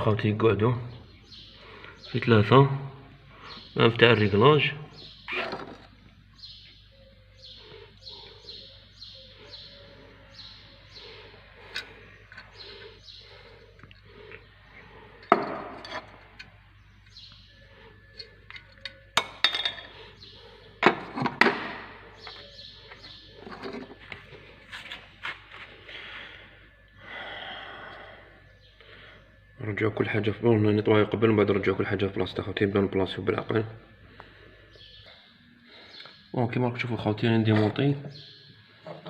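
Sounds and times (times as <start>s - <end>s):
bird chirping: 0.0s - 24.9s, 25.7s - 39.0s.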